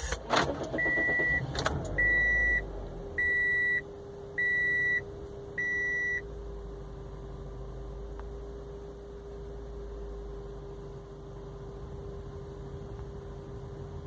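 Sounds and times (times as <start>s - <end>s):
steady low buzzing hum: 0.0s - 14.0s
car warning chime beeps: 0.7s - 6.3s.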